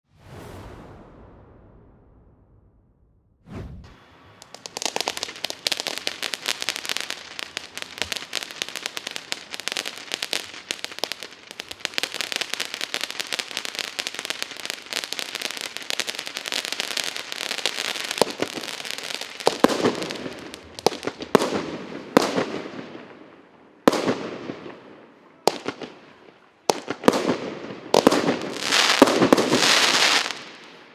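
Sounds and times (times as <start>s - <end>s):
firework shots with crackle: 3.7s - 23.2s, 23.9s - 24.8s, 26.7s - 30.9s
firework fountain crackling: 4.0s - 23.3s, 26.6s - 30.9s.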